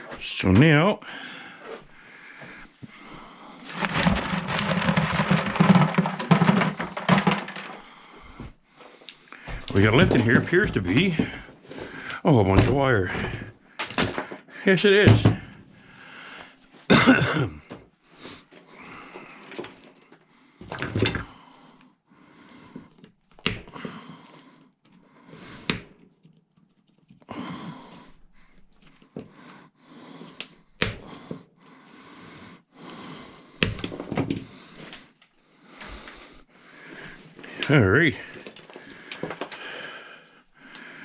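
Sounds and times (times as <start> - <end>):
scrap metal rummaged in bucket: 3.6 - 7.8, 37.1 - 39.8.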